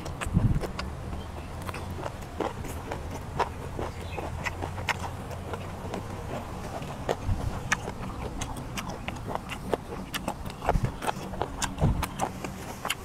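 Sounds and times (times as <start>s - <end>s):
wet chewing clicks and smacks: 0.0s - 13.0s.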